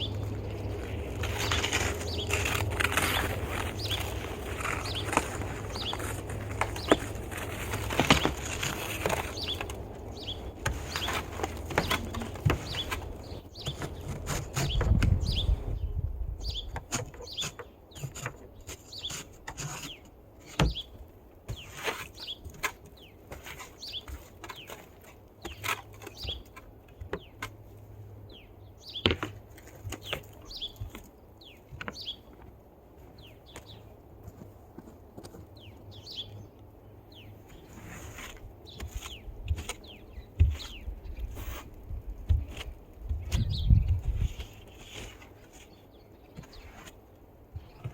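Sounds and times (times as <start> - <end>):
snow scraping and crunching: 0.0 - 13.4.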